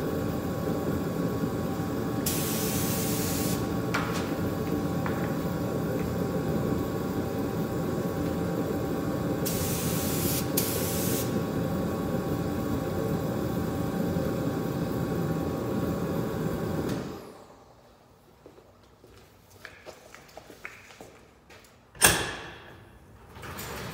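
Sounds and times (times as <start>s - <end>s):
hissing spray: 2.2s - 3.7s, 9.4s - 11.4s.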